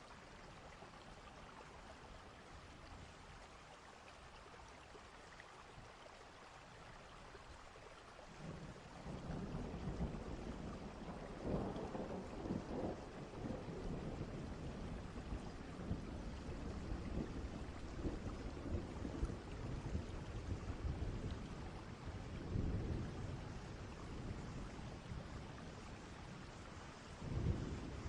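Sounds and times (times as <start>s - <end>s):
steady rain: 0.0s - 28.0s
distant thunder rumbles: 8.6s - 25.8s, 27.1s - 28.0s.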